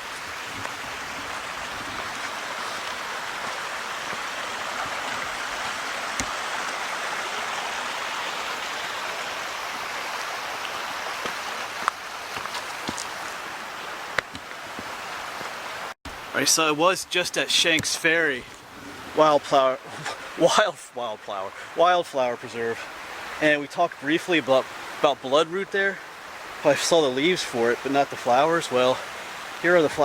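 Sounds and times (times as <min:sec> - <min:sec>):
stream rushing: 0:00.0 - 0:30.0.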